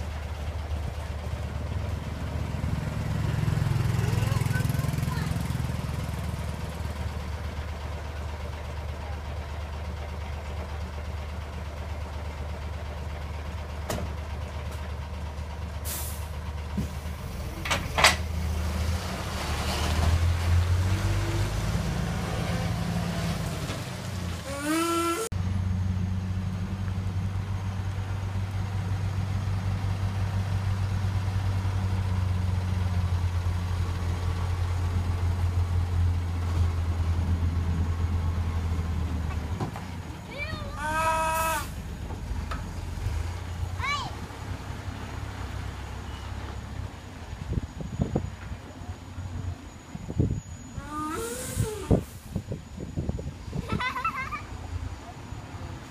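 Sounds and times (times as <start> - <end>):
diesel truck engine humming: 0.0 - 55.9
air brakes hissing: 15.8 - 17.0, 24.4 - 25.3, 41.2 - 41.9, 50.5 - 52.6.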